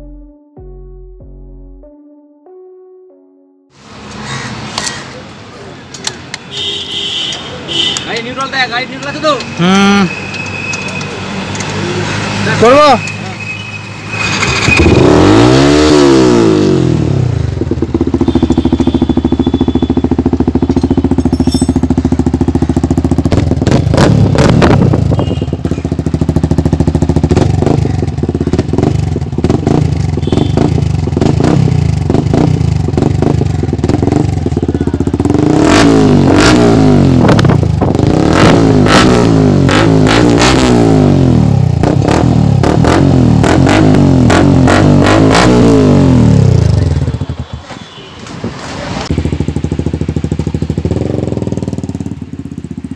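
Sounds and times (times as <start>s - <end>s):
motorcycle engine revving: 14.0s - 47.6s, 48.7s - 52.9s.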